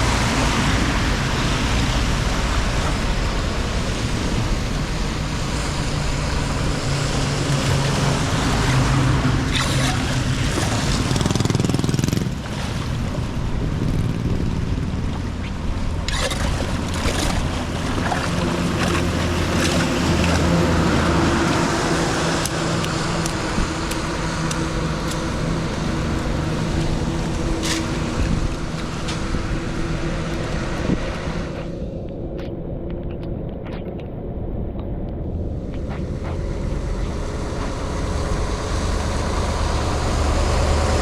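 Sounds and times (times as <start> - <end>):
rushing water: 0.0 - 31.8
low engine hum: 0.0 - 41.0.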